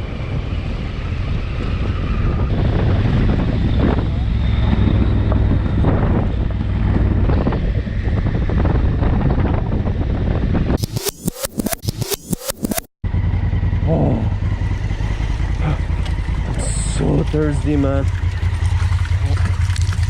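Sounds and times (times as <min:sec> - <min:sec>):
wind buffeting microphone: 0:00.0 - 0:10.8
motorcycle engine drone: 0:00.0 - 0:20.0
sharp clicks or knocks: 0:10.8 - 0:12.9.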